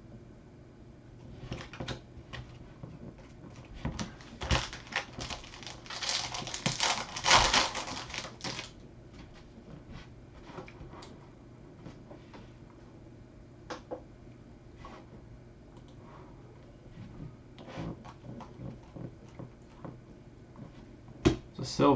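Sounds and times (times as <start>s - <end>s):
cards being shuffled by hand: 2.9s - 8.8s.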